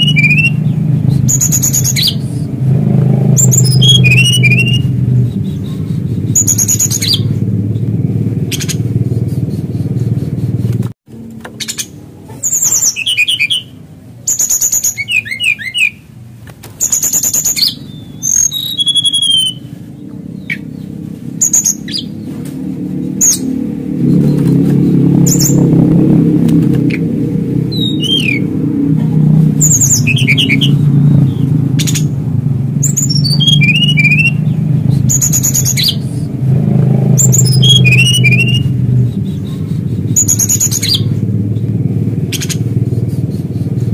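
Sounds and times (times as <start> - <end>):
bird singing high clear notes: 0.0 - 9.9, 11.6 - 16.1, 16.8 - 22.3, 26.8 - 28.6, 32.8 - 36.4, 37.0 - 43.9
low steady rumble: 0.0 - 16.4, 17.1 - 43.9.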